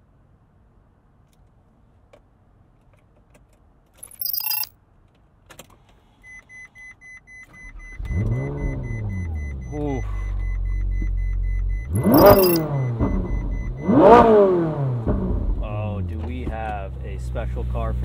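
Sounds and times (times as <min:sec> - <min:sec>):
car engine starting and revving: 0:07.6 - 0:18.0
electronic chime: 0:11.9 - 0:13.7.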